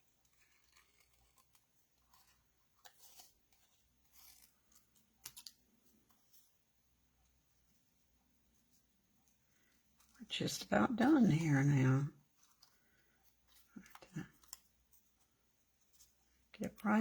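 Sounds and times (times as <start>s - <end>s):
paper rustle: 0.0s - 6.6s
scissors cutting cardstock: 0.2s - 5.6s.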